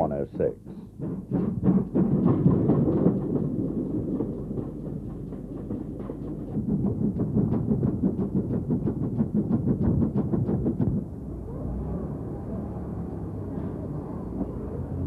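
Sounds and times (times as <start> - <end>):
steam locomotive exhaust beats: 0.0 - 15.0.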